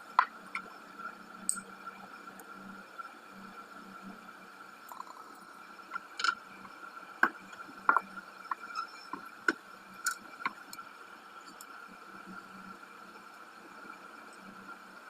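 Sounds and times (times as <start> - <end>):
small tools tapping on work surface: 7.2 - 10.6.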